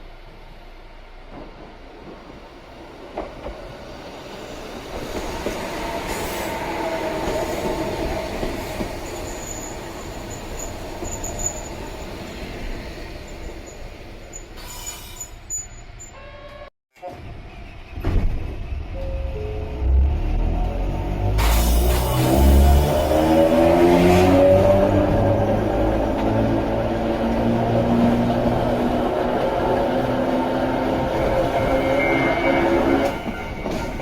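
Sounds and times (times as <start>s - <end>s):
electric train running on track: 1.3s - 16.2s, 17.1s - 34.0s
high wheel squeal: 9.0s - 12.4s, 13.2s - 16.6s, 31.1s - 34.0s.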